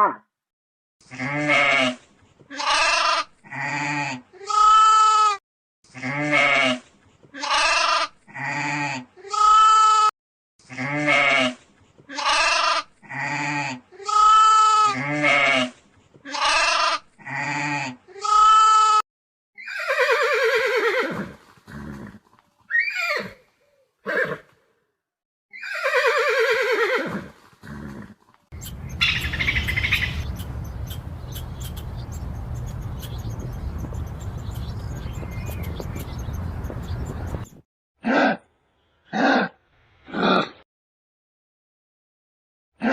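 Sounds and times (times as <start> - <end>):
goat bleating: 1.2 - 5.3, 7.4 - 10.1, 12.1 - 15.6, 16.3 - 19.0
steady low rumbling: 28.6 - 37.6.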